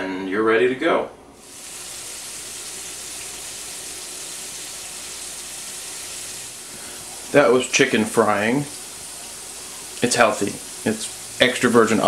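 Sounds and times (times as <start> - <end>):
chicken sizzling in oil: 1.4 - 12.0.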